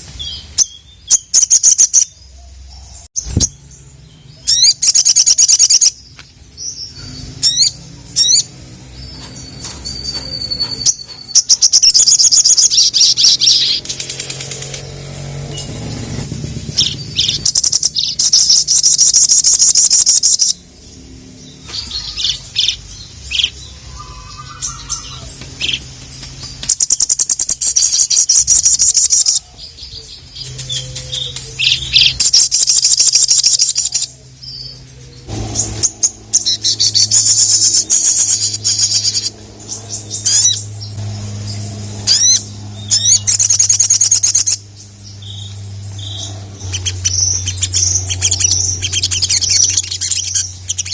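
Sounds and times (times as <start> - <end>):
bird chattering trills: 0.2 - 50.9
steady low hum: 2.1 - 50.9.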